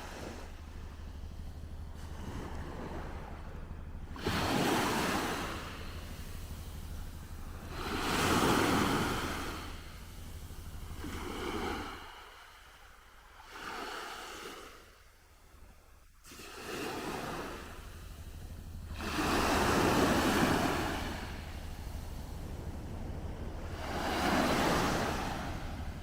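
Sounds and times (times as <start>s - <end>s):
sea waves washing onto shore: 0.0s - 15.0s, 16.2s - 26.0s.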